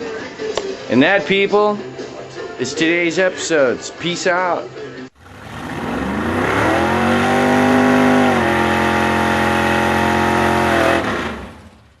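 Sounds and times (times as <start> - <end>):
engine at high revs: 5.2 - 12.0.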